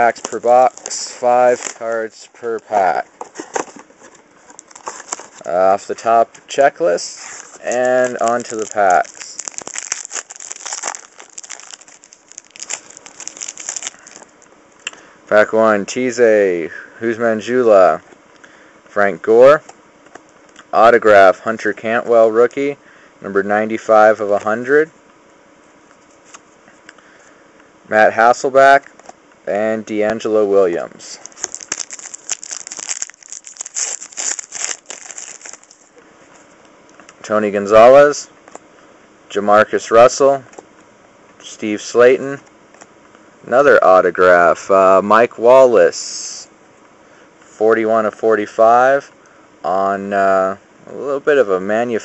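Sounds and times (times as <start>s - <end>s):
wrapper tearing and crinkling: 0.0s - 2.0s, 4.5s - 5.4s, 7.2s - 14.4s, 31.2s - 35.9s.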